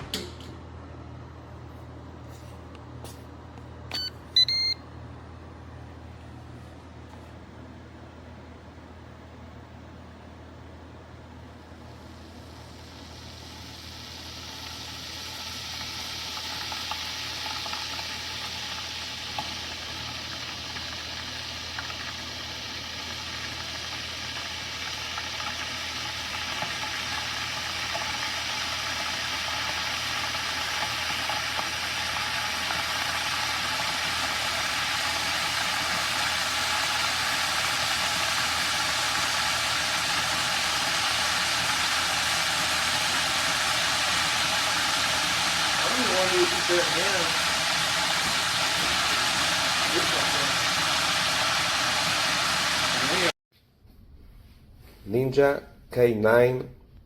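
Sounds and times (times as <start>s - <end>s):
electric kettle heating water: 7.7s - 53.4s.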